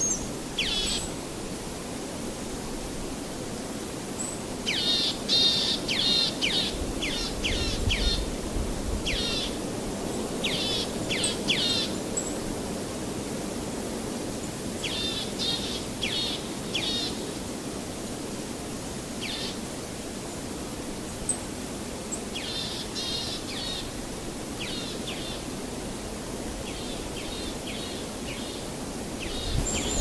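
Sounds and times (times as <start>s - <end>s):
background hiss: 0.0s - 30.0s
bird chirping: 29.2s - 30.0s.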